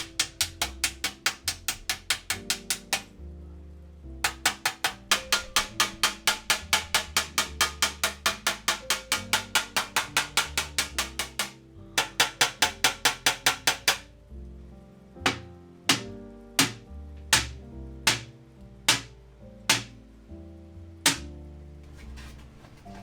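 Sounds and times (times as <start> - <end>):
background music: 0.0 - 23.0
hammer tapping on brass: 4.3 - 14.1, 15.3 - 16.8.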